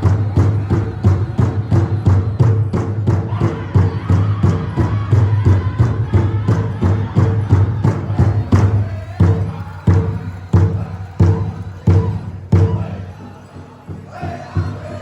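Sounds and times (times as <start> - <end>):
large drum beating: 0.0 - 13.2
singers chanting high: 0.0 - 15.0.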